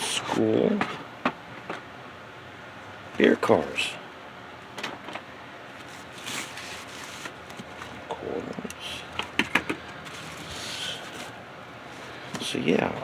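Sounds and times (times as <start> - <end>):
plastic rattles and rustles: 9.2 - 12.2.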